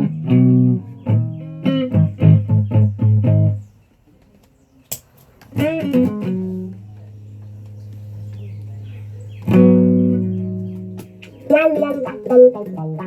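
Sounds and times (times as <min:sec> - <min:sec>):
guitar picked notes: 0:00.0 - 0:03.7, 0:05.5 - 0:13.0.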